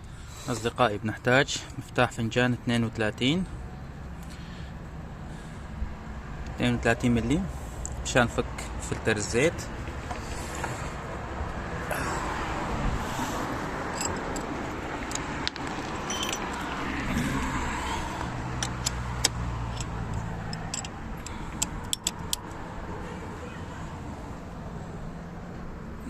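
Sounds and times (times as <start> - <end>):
metal hand tools clinking: 13.9 - 15.2, 15.9 - 16.8
sharp metallic clicks: 13.9 - 16.7, 18.2 - 22.6.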